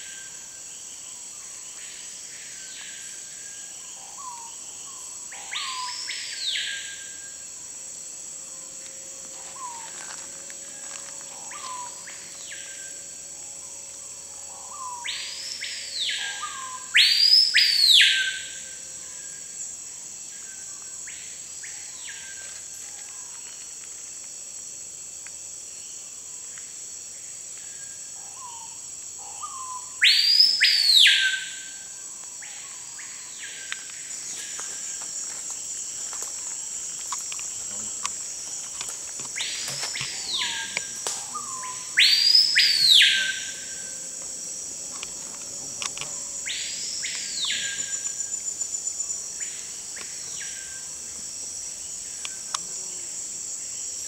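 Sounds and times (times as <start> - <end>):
high insect buzz: 0.0 - 54.0
birds whistling loudly: 29.4 - 31.6, 39.3 - 43.8.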